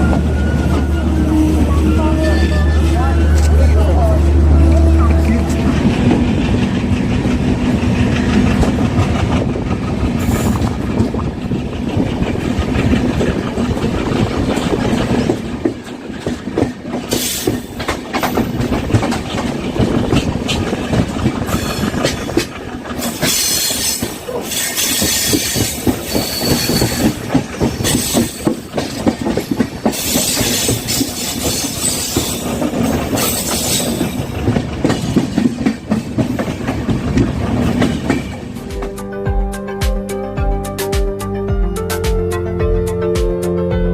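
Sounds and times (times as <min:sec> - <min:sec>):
train low hum: 0:00.0 - 0:43.9
train wheels clattering over rail joints: 0:05.4 - 0:39.0
high-pitched wheel squeal: 0:23.3 - 0:27.2.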